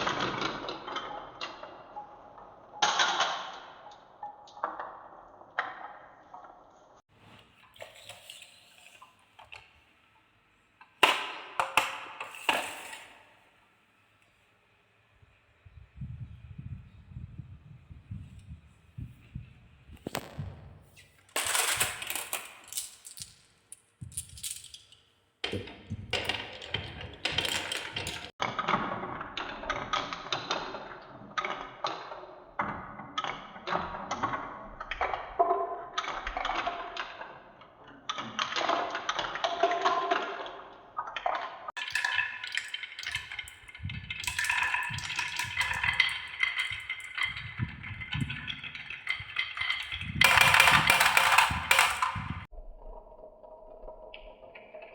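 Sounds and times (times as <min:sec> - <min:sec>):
marbles clattering down wooden tracks: 0:11.0 - 0:13.2, 0:20.0 - 0:20.6, 0:21.3 - 0:37.4, 0:41.7 - 0:52.5.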